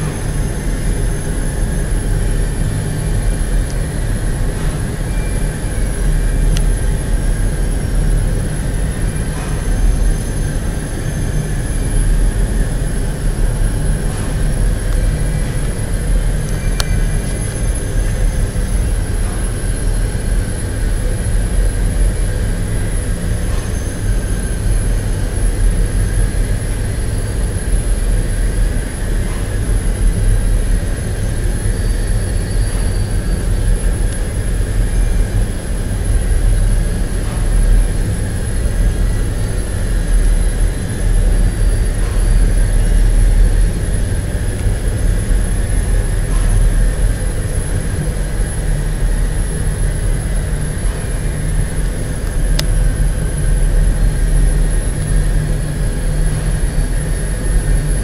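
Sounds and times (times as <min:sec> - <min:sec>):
faint steady whine: 0:00.0 - 0:58.0
industrial machinery low rumble: 0:00.0 - 0:58.0.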